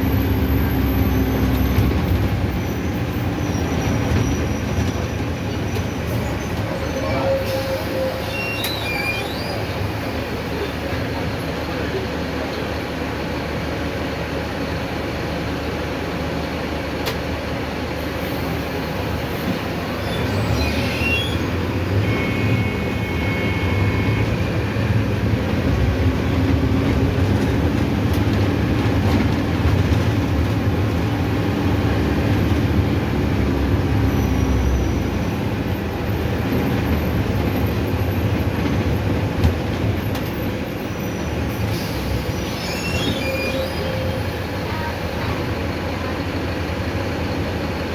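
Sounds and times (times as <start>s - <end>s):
bus road and body noise: 0.0s - 47.9s
diesel engine droning: 9.7s - 47.9s.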